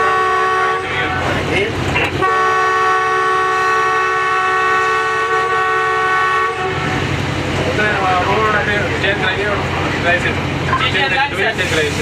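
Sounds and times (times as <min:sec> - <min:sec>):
locomotive air horn chord: 0:00.0 - 0:01.2, 0:02.2 - 0:07.0
train rumble: 0:00.0 - 0:12.0.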